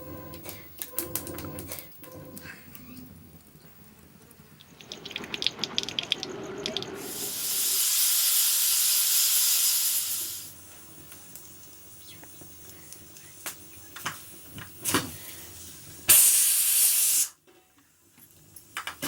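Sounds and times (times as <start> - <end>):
loud steady hiss from pot: 7.0 - 17.4.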